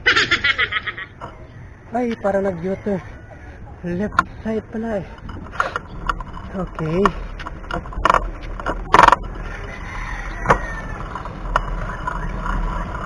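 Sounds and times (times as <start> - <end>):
road and traffic noise: 0.0 - 13.0
short rattle: 1.1 - 13.0.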